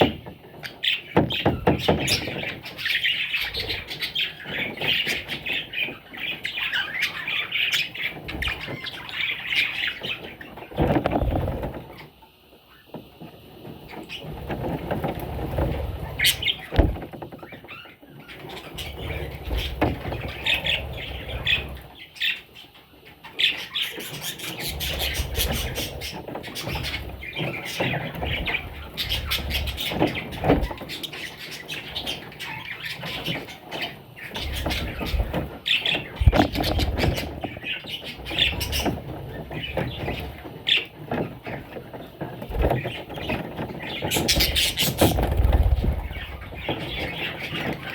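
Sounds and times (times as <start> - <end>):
budgerigars chirping: 0.0 - 11.3, 16.0 - 41.8, 42.4 - 47.9.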